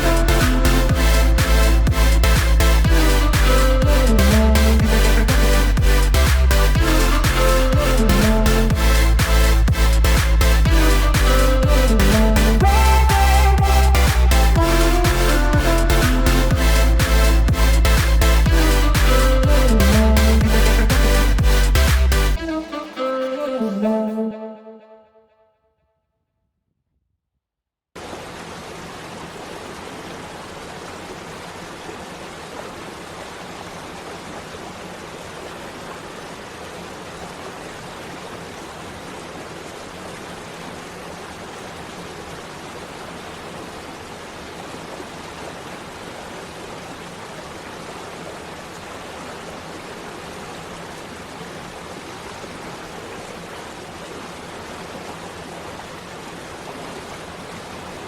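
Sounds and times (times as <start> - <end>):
waterfall rushing: 0.0 - 24.2.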